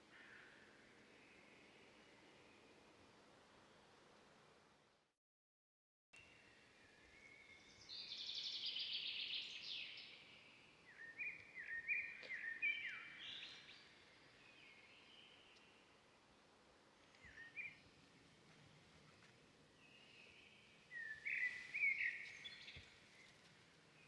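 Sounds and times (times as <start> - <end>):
wild birds singing: 0.0 - 3.0, 6.2 - 24.0
faint steady hiss: 0.0 - 5.1, 6.2 - 24.0.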